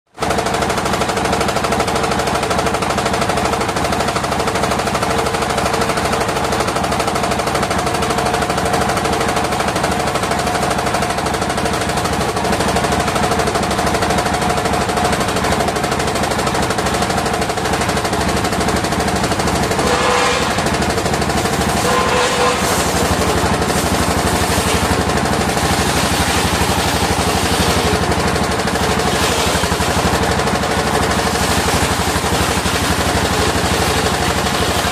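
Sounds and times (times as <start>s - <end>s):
sawmill engine chugging: 0.2s - 34.9s
saw blade cutting wood: 19.6s - 30.4s.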